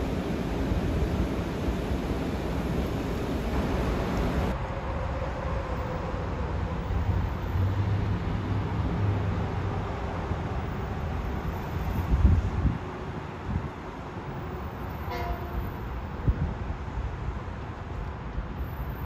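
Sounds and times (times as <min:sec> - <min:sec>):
train rumbling: 0:00.0 - 0:17.7.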